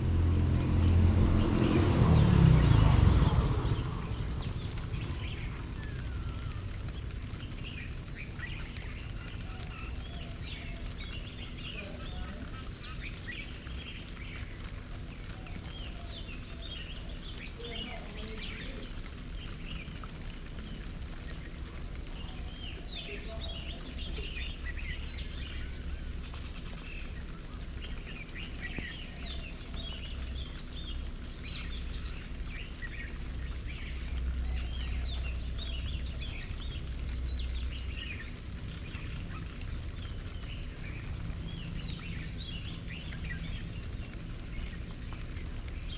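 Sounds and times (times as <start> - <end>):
low rumble: 0.0 - 11.8
small birds chirping: 0.0 - 45.9.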